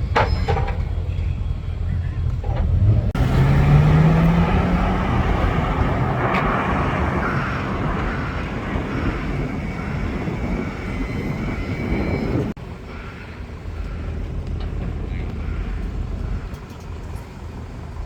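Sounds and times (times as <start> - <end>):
quiet engine noise: 0.2 - 10.4
passing vehicle engine roar: 2.3 - 11.2.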